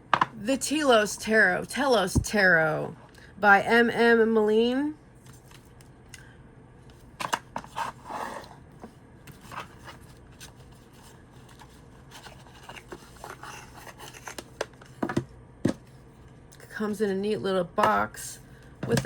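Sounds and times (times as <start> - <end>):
cards tapping and scraping: 6.9 - 15.9.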